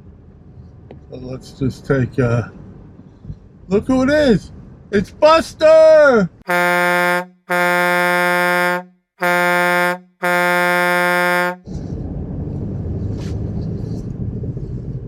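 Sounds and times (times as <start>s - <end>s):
low steady vehicle noise: 0.0s - 15.0s
car horn blasts: 6.5s - 11.6s.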